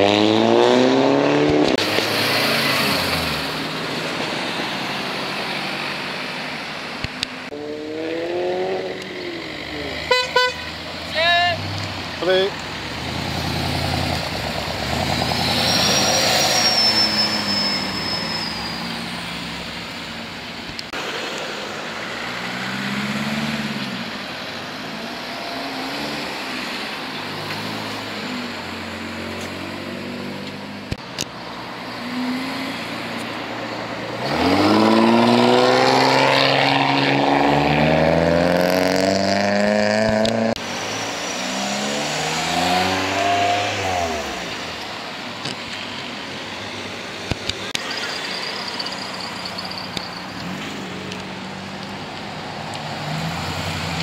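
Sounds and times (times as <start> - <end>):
car accelerating hard: 0.0 - 5.5, 7.5 - 10.1, 34.1 - 44.7
car engines revving: 0.0 - 54.0.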